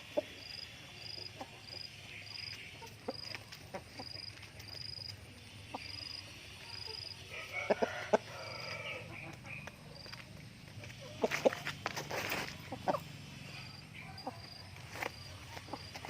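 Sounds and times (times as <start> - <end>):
cricket chirping: 0.0 - 16.0
poultry call: 5.7 - 9.8.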